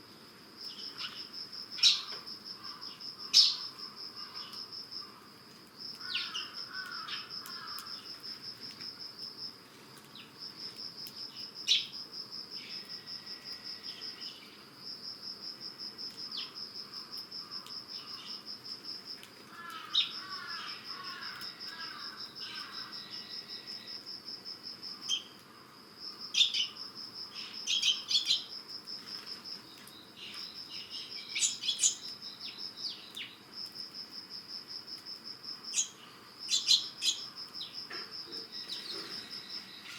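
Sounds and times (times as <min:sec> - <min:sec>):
insects trilling: 0:00.0 - 0:39.9
sparrows chirping: 0:00.7 - 0:04.6, 0:05.9 - 0:08.2, 0:11.3 - 0:12.0, 0:25.0 - 0:25.4, 0:26.3 - 0:28.5, 0:29.1 - 0:33.4, 0:35.7 - 0:39.9.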